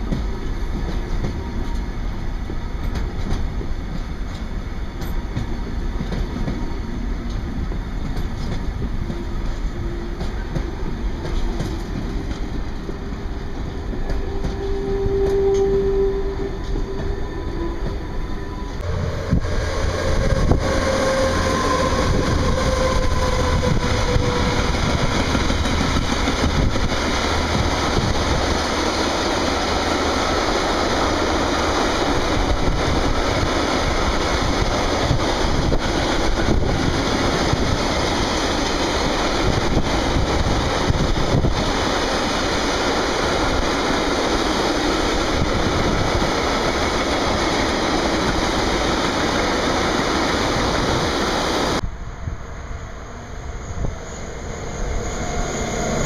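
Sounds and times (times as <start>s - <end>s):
distant train: 0.0s - 56.0s
freight train rumbling past: 0.0s - 56.0s.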